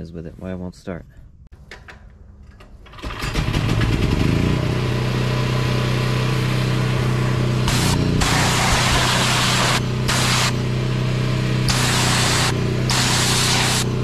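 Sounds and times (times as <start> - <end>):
pressure washer motor humming: 3.3 - 14.0
water spray hissing: 7.7 - 10.6, 11.7 - 14.0.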